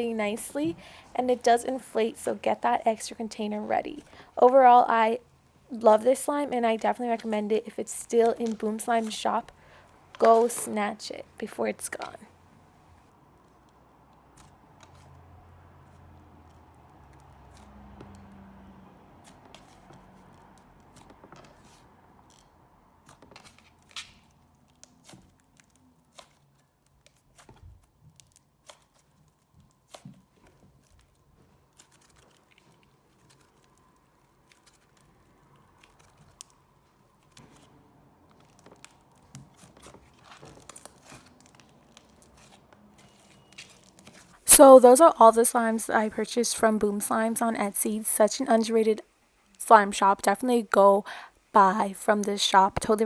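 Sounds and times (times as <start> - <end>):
sticky slime clicks and crackles: 23.0 - 42.6.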